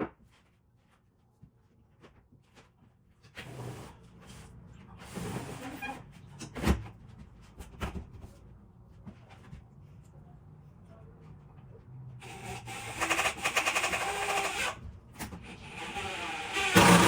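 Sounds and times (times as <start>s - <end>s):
power tool chattering: 12.2s - 14.8s, 15.8s - 17.0s.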